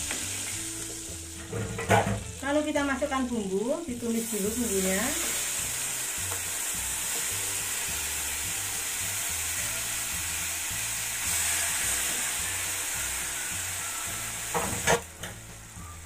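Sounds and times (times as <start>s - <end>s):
spice paste sizzling in oil: 0.0s - 16.0s.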